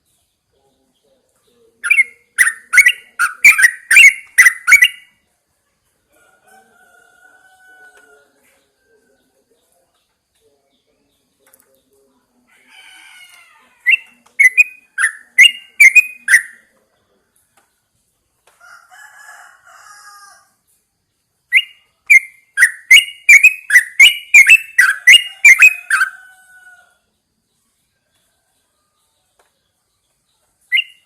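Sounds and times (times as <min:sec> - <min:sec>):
bird chattering: 0:01.7 - 0:05.1, 0:13.8 - 0:16.7, 0:21.5 - 0:26.4, 0:30.7 - 0:31.0
bird calling sharp repeated notes: 0:01.8 - 0:05.1, 0:13.8 - 0:16.7, 0:21.5 - 0:26.3, 0:30.7 - 0:31.0.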